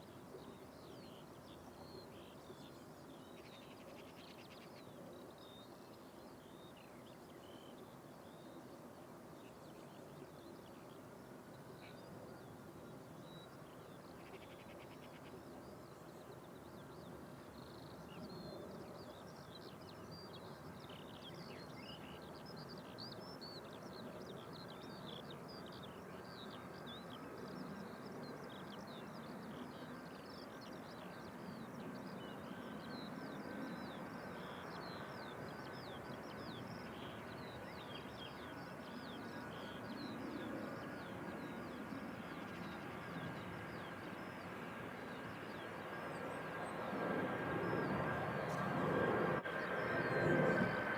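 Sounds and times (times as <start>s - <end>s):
faint whine: 0.0s - 50.9s
birds chirping: 9.3s - 50.9s
distant jet engines rumbling: 25.9s - 50.9s.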